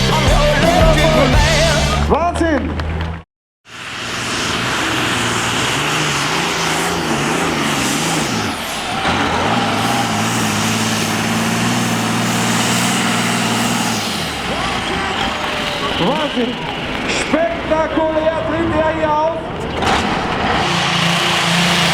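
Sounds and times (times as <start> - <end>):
engine running hard: 0.0 - 21.9
loud rushing hiss: 3.7 - 17.4.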